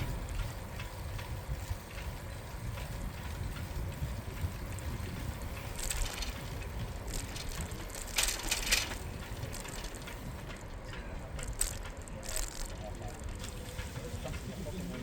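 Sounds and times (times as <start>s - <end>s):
bicycle tyres and wind rumble: 0.0s - 15.0s
sharp mechanical clicks and rattles: 0.2s - 15.0s.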